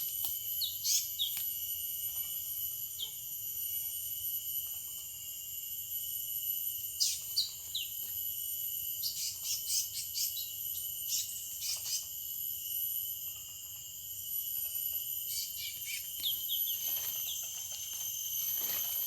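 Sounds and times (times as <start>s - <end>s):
high insect drone: 0.0s - 19.0s
small birds chirping: 0.6s - 1.5s, 7.0s - 8.1s, 9.0s - 12.2s, 15.3s - 18.8s.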